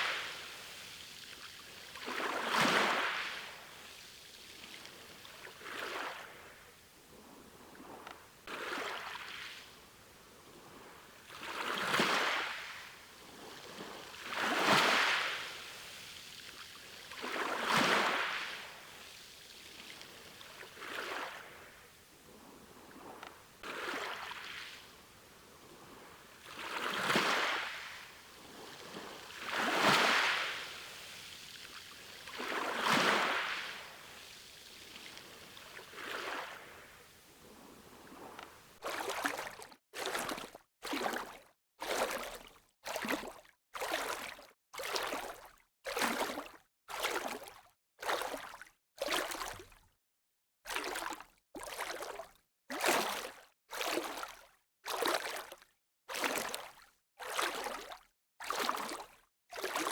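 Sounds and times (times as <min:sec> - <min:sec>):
sea waves breaking on shore: 0:00.0 - 0:09.8, 0:10.4 - 0:42.4.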